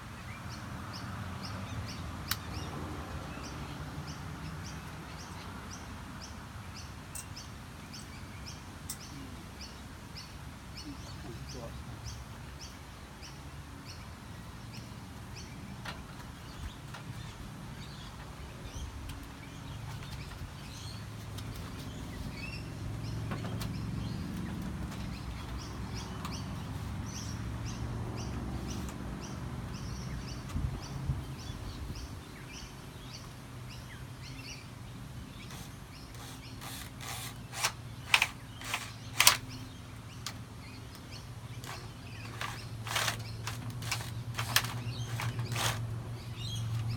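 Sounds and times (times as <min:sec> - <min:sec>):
birds chirping: 0:00.0 - 0:46.9
sharp clicks: 0:35.5 - 0:45.8.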